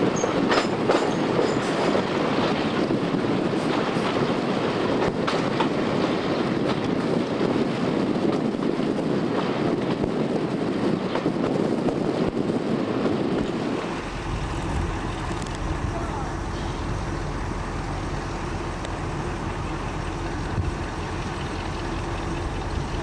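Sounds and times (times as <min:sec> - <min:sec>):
diesel engine rumble: 0:00.0 - 0:23.0
train wheel and wind rush: 0:00.0 - 0:23.0
wind buffeting microphone: 0:00.0 - 0:23.0
track clicks and knocks: 0:00.1 - 0:02.6.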